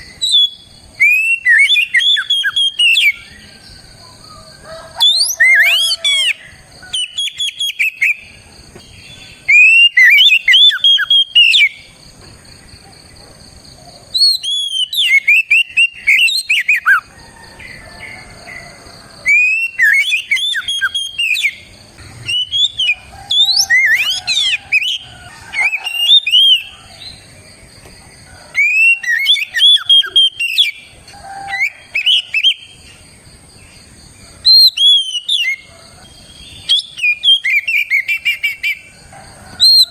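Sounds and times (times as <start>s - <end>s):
bird singing whistled phrases: 0.0s - 3.4s, 5.0s - 8.2s, 9.4s - 11.8s, 14.2s - 17.0s, 19.3s - 21.6s, 22.2s - 26.7s, 28.6s - 30.8s, 31.5s - 32.7s, 34.5s - 35.6s, 36.6s - 38.8s.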